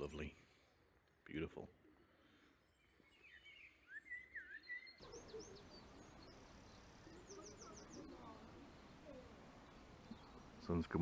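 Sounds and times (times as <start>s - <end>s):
birds twittering: 2.2s - 11.0s
steady faint hiss: 5.0s - 11.0s.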